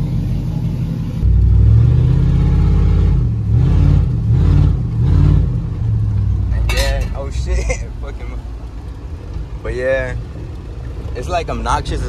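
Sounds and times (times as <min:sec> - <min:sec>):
loud engine revving: 0:01.2 - 0:06.5.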